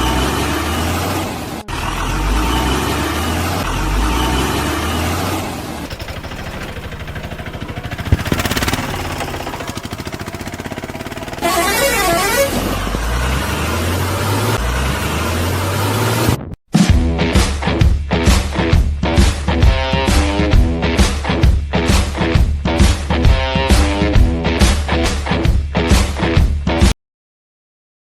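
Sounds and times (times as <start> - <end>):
engine running rhythmically: 0.0 - 16.4, 17.6 - 26.4
vehicle horn: 11.3 - 12.8.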